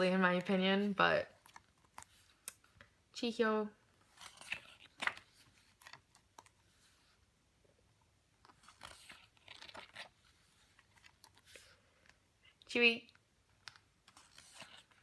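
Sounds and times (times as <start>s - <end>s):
paper pages rustling: 4.0s - 7.1s, 8.4s - 12.2s, 13.6s - 15.0s.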